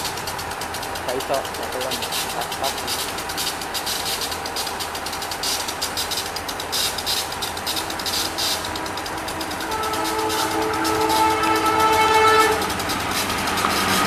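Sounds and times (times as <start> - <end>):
train rumble and hiss: 0.0 - 14.0
locomotive air horn: 7.7 - 14.0.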